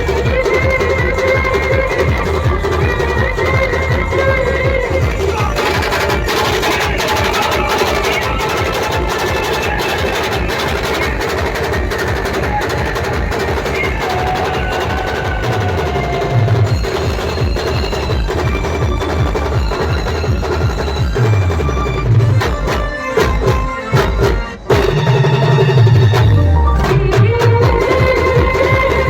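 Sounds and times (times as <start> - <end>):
band music: 0.0 - 29.0
fast dense drumming: 0.0 - 29.0
heavy bass notes: 25.8 - 28.5.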